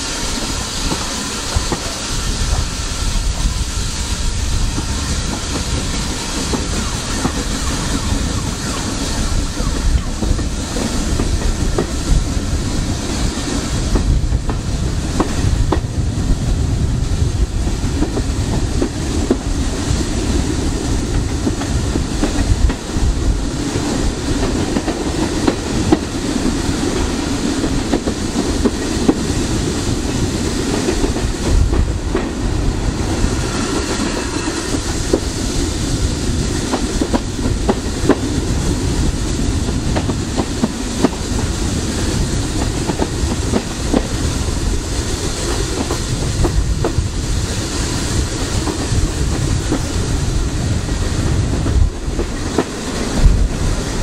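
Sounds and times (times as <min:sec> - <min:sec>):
train wheels rumbling on rail: 0:00.0 - 0:54.0
wheels clicking over rail joints: 0:04.2 - 0:16.1, 0:16.9 - 0:54.0.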